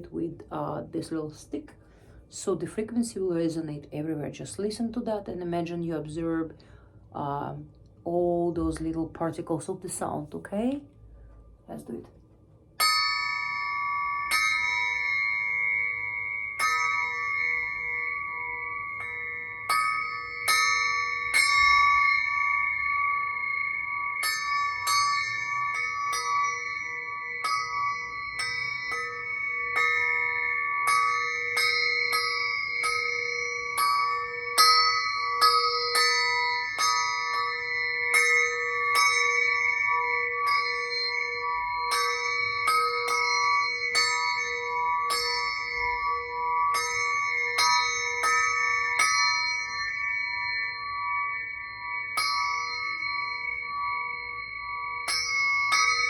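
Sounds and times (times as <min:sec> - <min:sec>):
crystal singing pyramid struck with stick: 0:12.8 - 0:56.0
overlapping ringing tones: 0:12.8 - 0:56.0.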